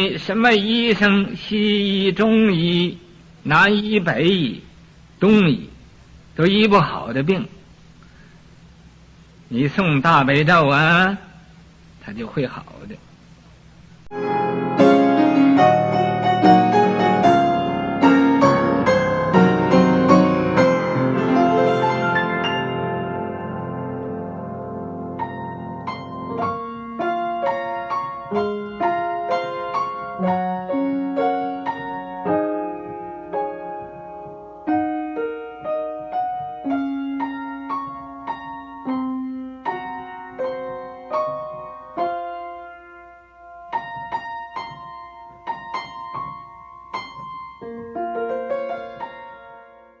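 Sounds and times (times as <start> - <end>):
solo piano melody: 14.0 - 50.0.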